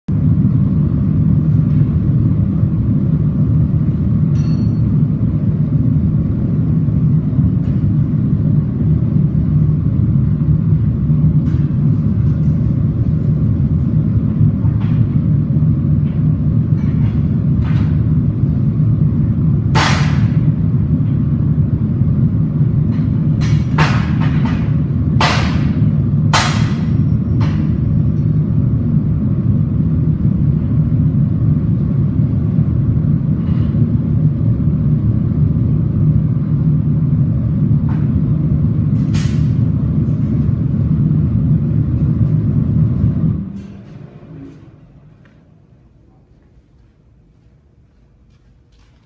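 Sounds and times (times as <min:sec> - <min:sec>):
hammer striking metal: 0:04.3 - 0:05.1, 0:19.7 - 0:20.5, 0:22.9 - 0:27.8
steady low roar: 0:05.1 - 0:46.0.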